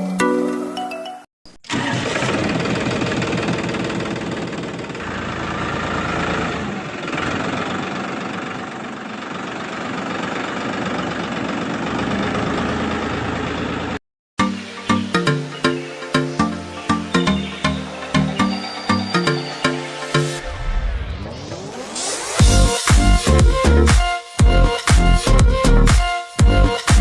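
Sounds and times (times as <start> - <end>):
tractor engine idling: 1.7 - 14.0.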